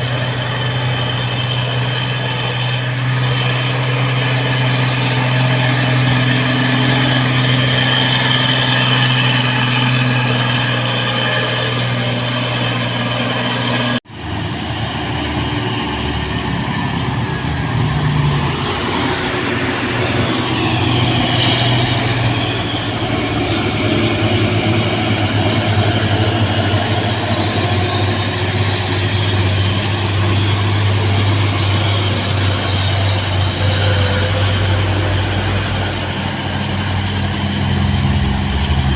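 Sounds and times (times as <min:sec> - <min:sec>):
truck diesel engine running: 0:00.0 - 0:38.9.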